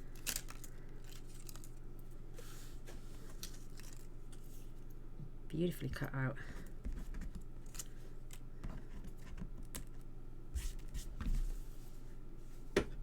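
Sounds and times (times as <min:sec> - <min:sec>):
cardstock pieces clicking and rustling: 0:00.0 - 0:01.8, 0:03.3 - 0:04.4.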